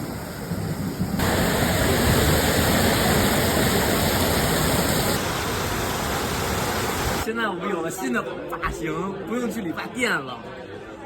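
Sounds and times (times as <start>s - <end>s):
heavy pouring rain: 0.0s - 7.3s.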